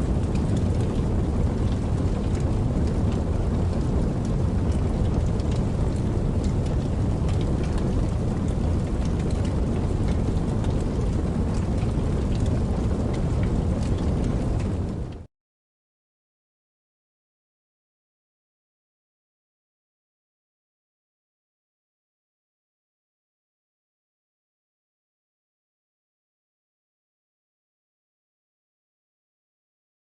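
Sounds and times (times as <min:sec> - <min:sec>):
campfire crackling: 0:00.0 - 0:15.3.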